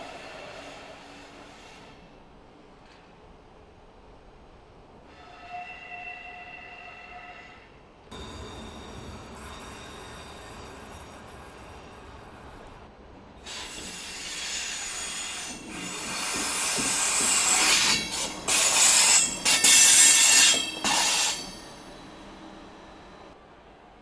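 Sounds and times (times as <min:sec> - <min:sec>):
train running on rails: 0:00.0 - 0:24.0
metallic wheel squeal: 0:05.2 - 0:12.8, 0:16.9 - 0:23.3.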